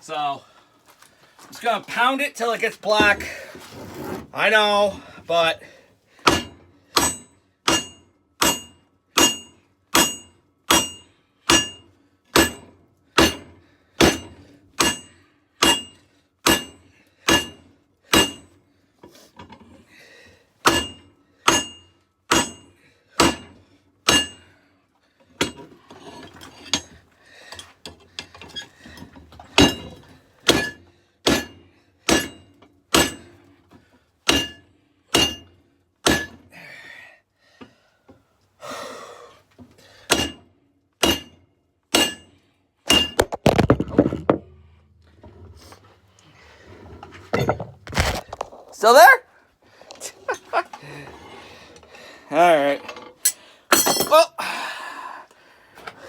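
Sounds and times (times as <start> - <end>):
hammer blows on steel anvil: 6.3 - 11.8.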